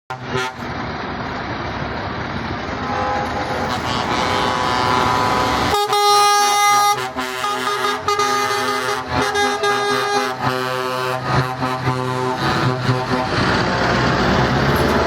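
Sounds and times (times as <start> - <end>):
truck air horn: 0.1 - 0.7, 2.7 - 13.7
vehicle noise: 0.1 - 15.0.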